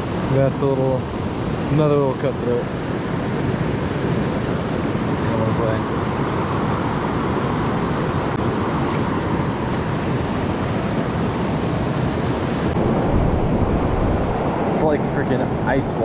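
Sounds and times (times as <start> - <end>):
low rumble: 12.7 - 15.7.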